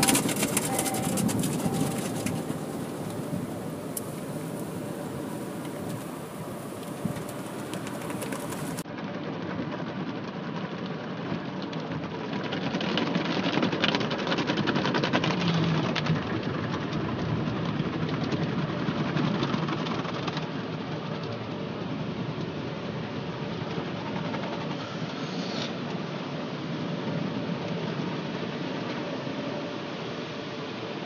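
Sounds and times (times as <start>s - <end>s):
car wash water spray and machinery: 0.0s - 8.8s.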